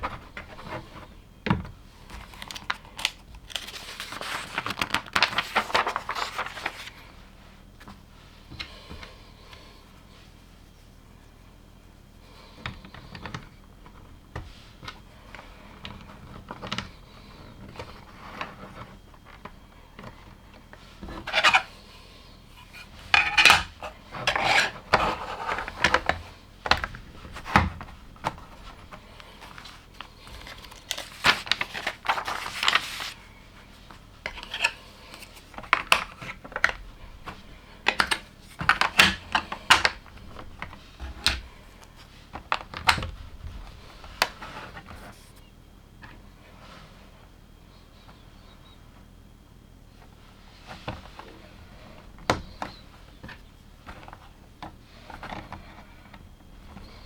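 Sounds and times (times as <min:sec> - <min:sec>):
loose plastic pieces clattering: 0:22.6 - 0:33.2.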